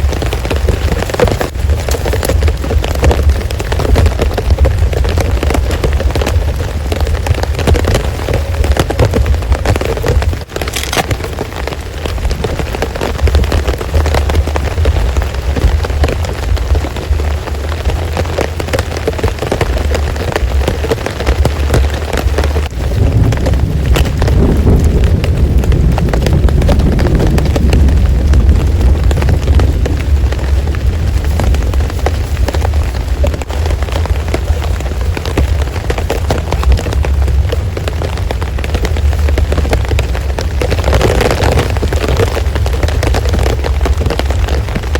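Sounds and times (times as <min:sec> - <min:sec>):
heavy rain falling: 0:00.0 - 0:44.9
low thunderstorm rumble: 0:00.0 - 0:44.9.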